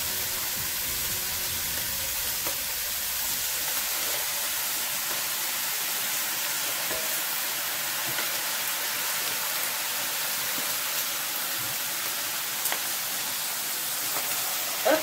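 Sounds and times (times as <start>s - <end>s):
meat sizzling in a pot: 0.0s - 15.0s.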